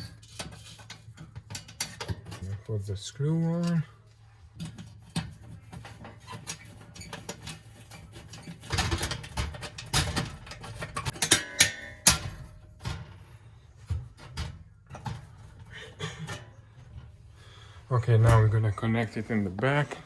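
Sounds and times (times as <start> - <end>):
metal clicks and scrapes: 0.0 - 2.9, 4.6 - 13.2.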